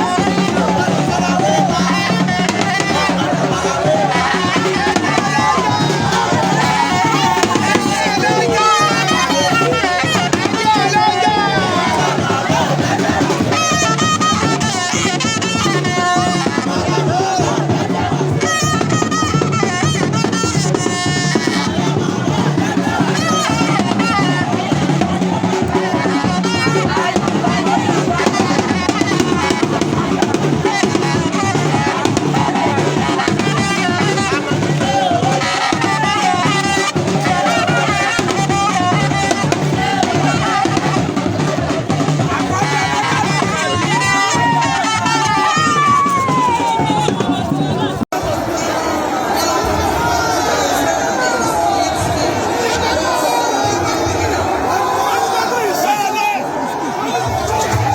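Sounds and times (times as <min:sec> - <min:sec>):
loud music with drum beat: 0:00.0 - 0:48.5, 0:57.2 - 0:57.9.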